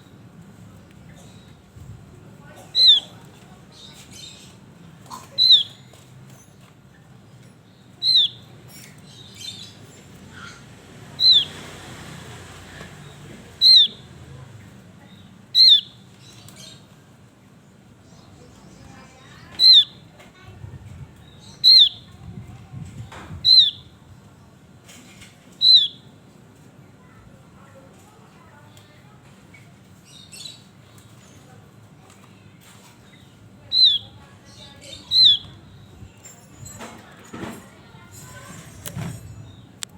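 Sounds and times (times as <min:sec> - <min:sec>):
faint bird chirp: 0:02.4 - 0:11.7, 0:12.9 - 0:17.0, 0:18.0 - 0:20.1, 0:21.2 - 0:22.3, 0:23.4 - 0:23.9, 0:25.6 - 0:26.1, 0:32.9 - 0:36.8
bird calling descending notes: 0:13.6 - 0:14.0.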